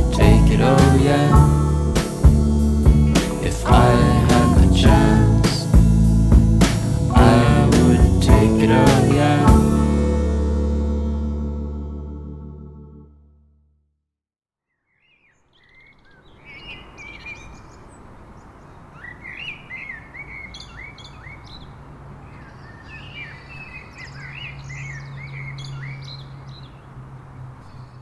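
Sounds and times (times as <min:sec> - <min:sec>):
low steady hum: 0:00.0 - 0:13.0
birds chirping and singing: 0:15.6 - 0:26.9.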